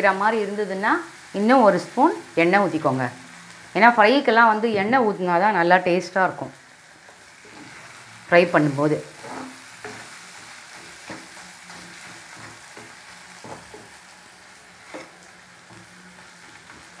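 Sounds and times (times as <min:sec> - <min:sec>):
vegetables sizzling in oil: 0:00.0 - 0:17.0
ladle scraping against pan: 0:09.1 - 0:10.1.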